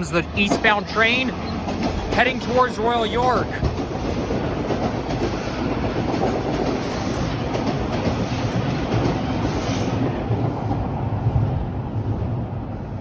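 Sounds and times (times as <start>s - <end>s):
subway wheels clattering on rails: 0.0s - 13.0s
train low rumble: 0.0s - 13.0s.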